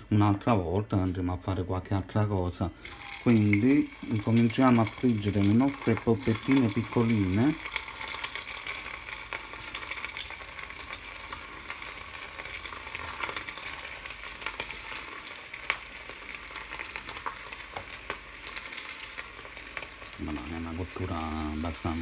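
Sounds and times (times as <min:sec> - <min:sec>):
meatballs sizzling in oil: 0:02.8 - 0:22.0
oil crackles and pops: 0:02.8 - 0:22.0.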